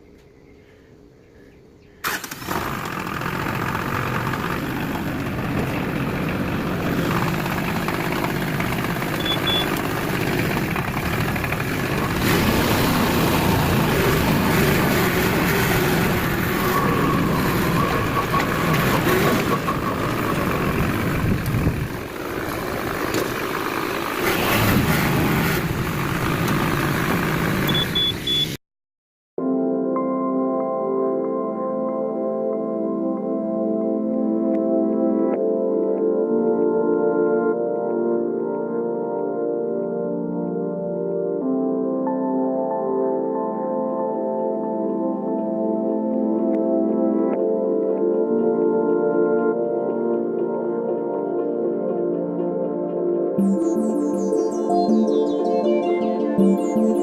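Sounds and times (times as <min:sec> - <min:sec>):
pressure washer engine drone: 0:02.1 - 0:28.6.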